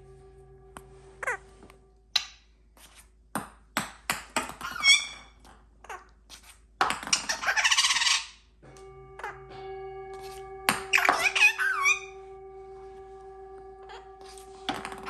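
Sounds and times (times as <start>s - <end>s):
parrot harsh screech: 7.3s - 8.4s, 10.9s - 12.1s
parrot whistled chirp: 10.9s - 12.1s.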